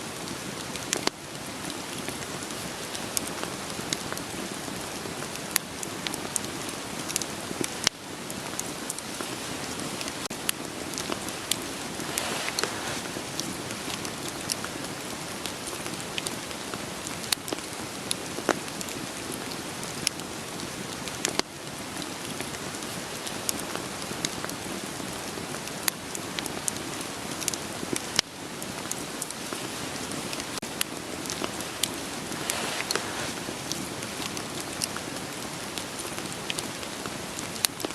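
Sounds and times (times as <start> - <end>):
steady rain hiss: 0.0 - 37.9
wood fire crackling and popping: 0.2 - 37.9.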